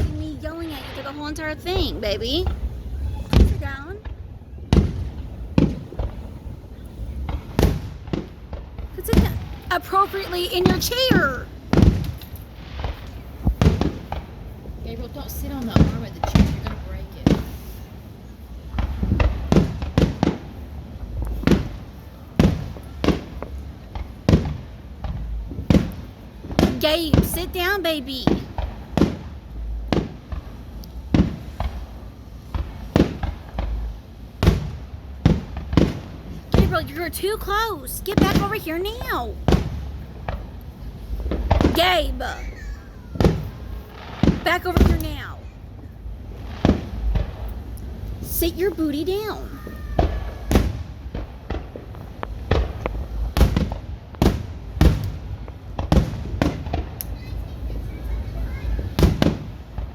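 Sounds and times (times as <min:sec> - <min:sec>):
low rumbling: 0:00.0 - 0:21.9
fireworks bangs: 0:00.0 - 0:59.9.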